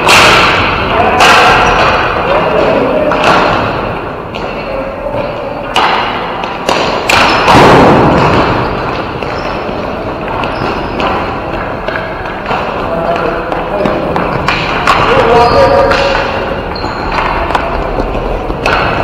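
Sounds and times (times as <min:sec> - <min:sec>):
sticks slapping ball: 0:00.0 - 0:04.5, 0:05.2 - 0:09.4, 0:10.2 - 0:19.0
thuds against rink boards: 0:05.7 - 0:16.4
loud crash: 0:07.1 - 0:08.8.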